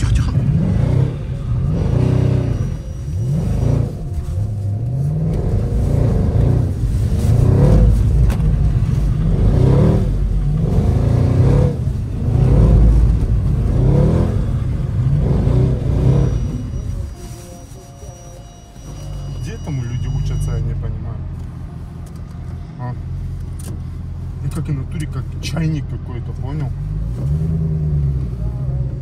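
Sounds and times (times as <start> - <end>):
car engine revving hard: 0.0 - 4.2, 9.0 - 16.7.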